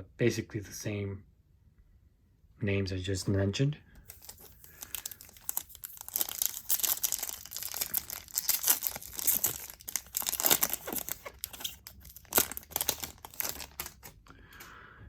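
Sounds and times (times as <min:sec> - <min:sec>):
card pack wrapper tearing and crinkling: 0:04.1 - 0:14.6.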